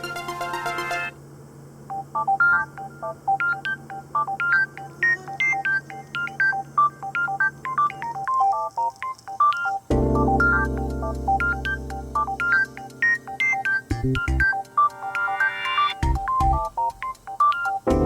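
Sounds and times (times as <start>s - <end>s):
dense electronic music: 0.0s - 1.2s, 9.9s - 17.2s
high synth blips melody: 0.0s - 1.2s, 9.5s - 18.0s
faint low hum: 0.0s - 18.0s.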